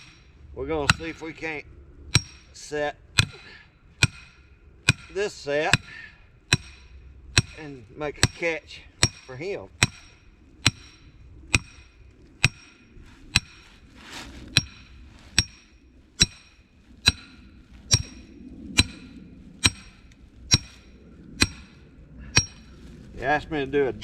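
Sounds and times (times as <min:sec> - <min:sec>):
hammer blows on metal: 0:14.6 - 0:22.7.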